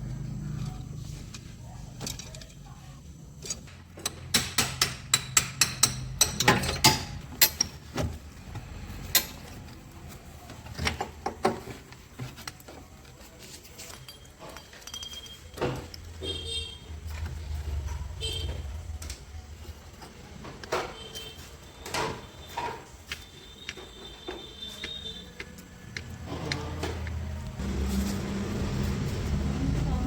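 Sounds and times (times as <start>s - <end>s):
hand tools knocking on metal: 3.5s - 9.7s, 19.9s - 27.7s.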